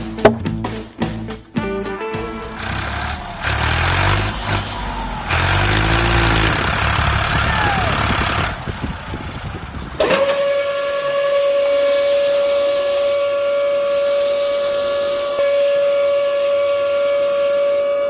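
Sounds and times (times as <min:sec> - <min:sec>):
heavy engine rumble: 0:02.2 - 0:11.2
long whistle-like tone: 0:10.0 - 0:18.0.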